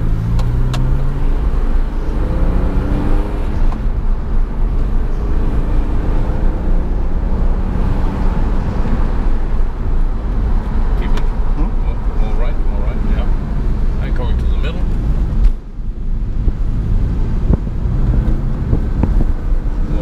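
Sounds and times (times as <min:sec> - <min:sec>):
car engine accelerating: 0:00.0 - 0:20.0
road and tyre noise: 0:00.0 - 0:20.0.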